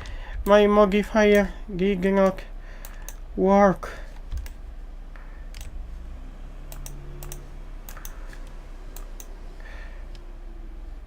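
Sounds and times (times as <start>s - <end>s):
steady low hum: 0.0s - 11.0s
keyboard and mouse clicks: 1.2s - 3.3s, 4.1s - 4.6s, 5.5s - 5.8s, 6.7s - 9.4s.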